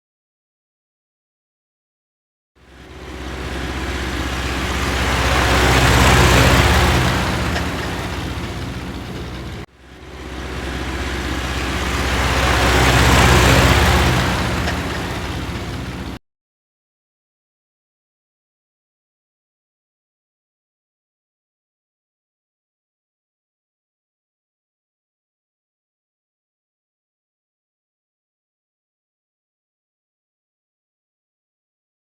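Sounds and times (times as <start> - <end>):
vehicle engine hum: 2.6 - 16.2.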